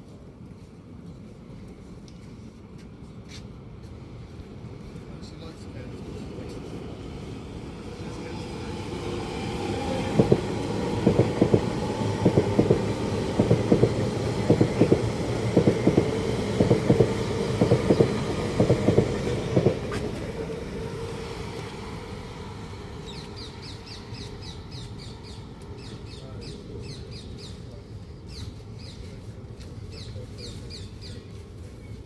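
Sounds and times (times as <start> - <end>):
low train rumble: 0.0 - 32.0
train wheels clicking over rail joints: 10.0 - 20.5.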